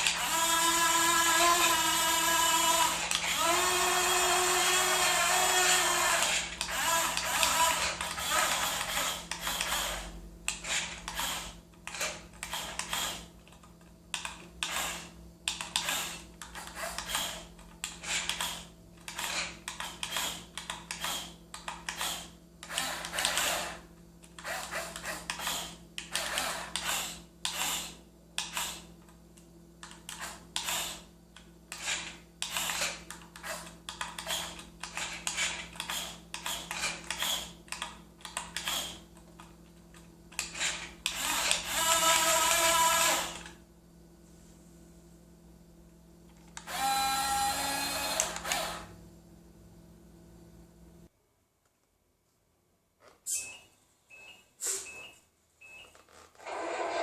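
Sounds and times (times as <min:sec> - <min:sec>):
small electric motors whirring: 0:00.0 - 0:13.3, 0:14.6 - 0:23.8, 0:31.7 - 0:37.6, 0:40.4 - 0:43.5, 0:46.6 - 0:48.9.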